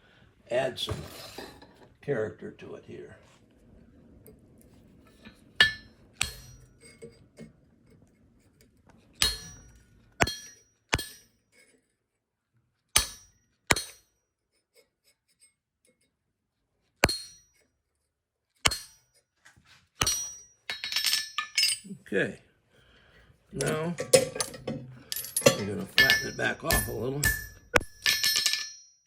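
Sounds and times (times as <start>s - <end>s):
hammer striking steel on anvil: 5.6s - 7.0s, 9.2s - 11.4s, 13.0s - 14.1s, 17.0s - 17.6s, 18.6s - 19.1s, 20.0s - 21.8s, 23.6s - 28.9s.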